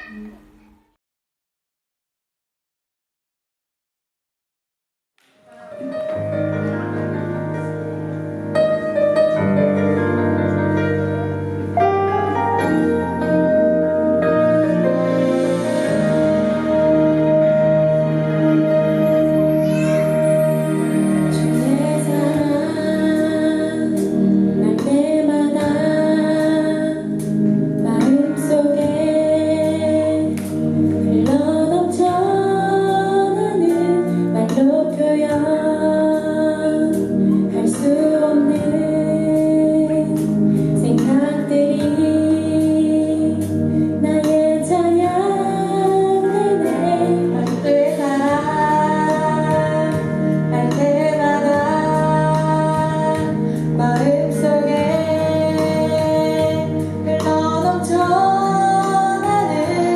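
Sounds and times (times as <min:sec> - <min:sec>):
instrumental accompaniment: 0:05.2 - 0:59.9
woman singing worship song: 0:20.8 - 0:59.9.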